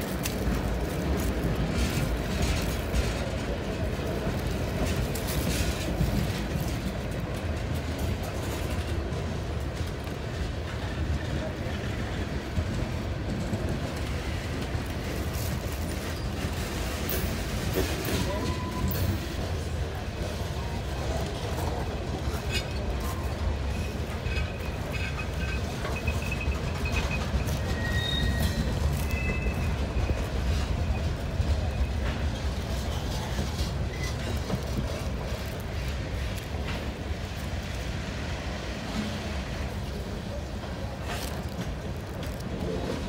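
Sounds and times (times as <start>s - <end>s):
freight train wheels rumbling: 0.0s - 43.0s
wheels squealing: 21.7s - 36.6s.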